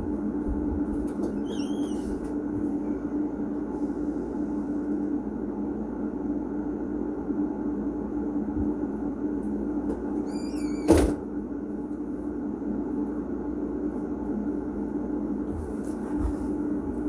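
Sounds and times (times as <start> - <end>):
short squeak: 1.4 - 2.2, 10.2 - 11.1.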